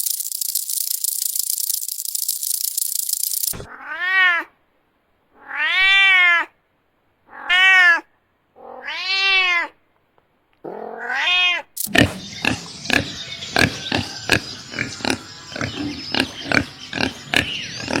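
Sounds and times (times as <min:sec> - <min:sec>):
cat meowing: 0:03.6 - 0:04.5, 0:05.4 - 0:06.6, 0:07.3 - 0:09.8, 0:10.7 - 0:11.8.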